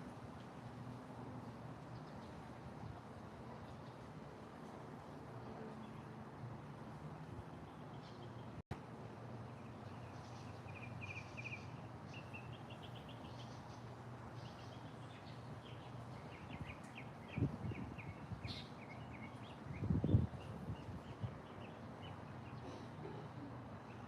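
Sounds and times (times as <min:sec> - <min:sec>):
songbirds trilling: 0:09.4 - 0:24.0.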